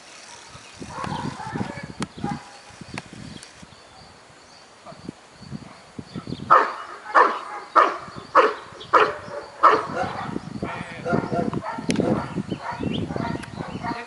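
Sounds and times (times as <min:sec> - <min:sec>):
dog barking: 0:00.9 - 0:02.5, 0:06.2 - 0:14.0
sharp clicks: 0:02.9 - 0:03.7.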